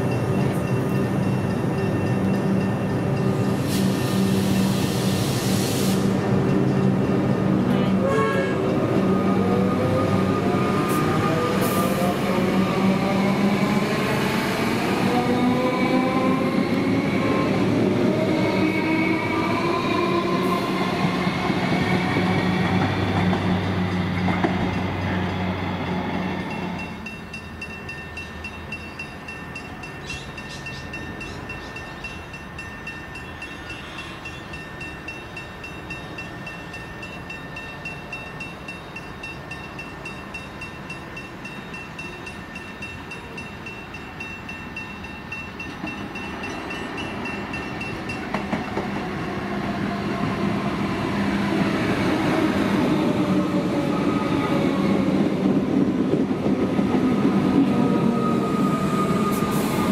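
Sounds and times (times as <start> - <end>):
train rumble: 0.0 - 59.9.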